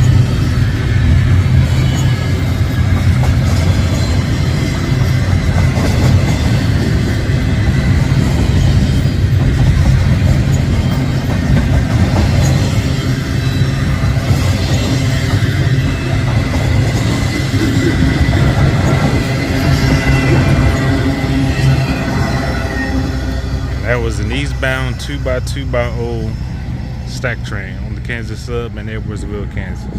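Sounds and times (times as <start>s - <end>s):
wheels clicking over rail joints: 0.0s - 22.4s
steel wheels rumbling on rail: 0.0s - 29.9s.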